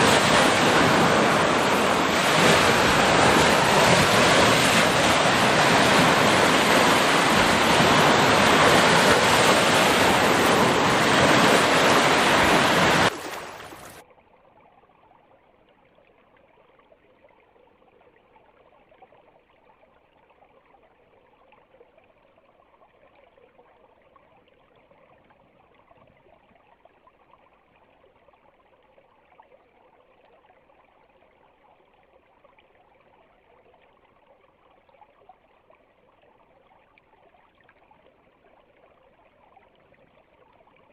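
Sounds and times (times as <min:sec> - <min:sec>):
stream water rushing: 0:00.0 - 0:14.0
faint water trickle: 0:13.1 - 0:40.9.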